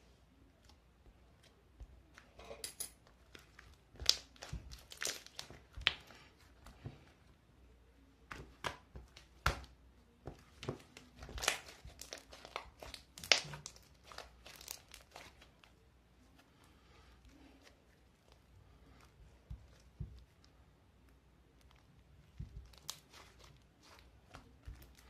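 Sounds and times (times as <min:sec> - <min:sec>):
handling noise crinkling: 0:10.8 - 0:16.6, 0:21.5 - 0:25.0.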